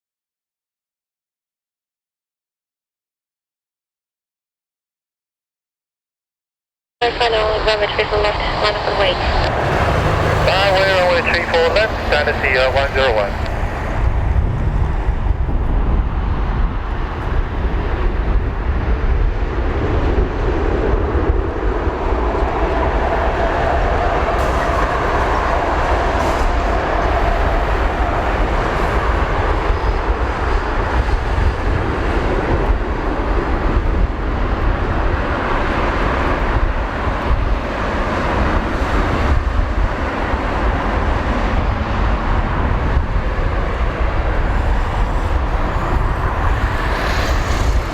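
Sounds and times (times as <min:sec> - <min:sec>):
jet engines idling: 0:07.0 - 0:14.2.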